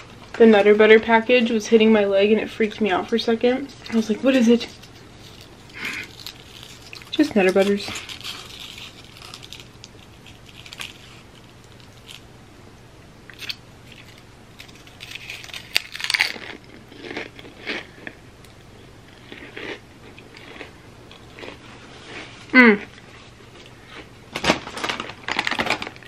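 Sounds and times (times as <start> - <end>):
chip crunching: 3.6 - 12.3, 13.3 - 26.0
chip scraping dip: 3.8 - 12.2.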